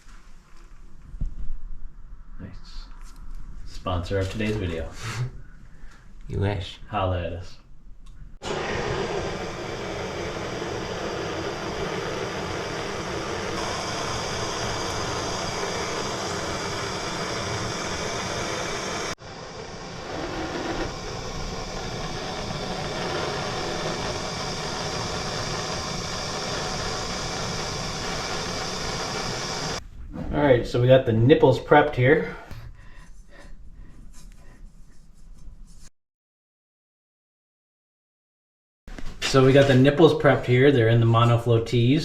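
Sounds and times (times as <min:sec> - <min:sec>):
soldering torch flame hissing: 0:08.4 - 0:29.8.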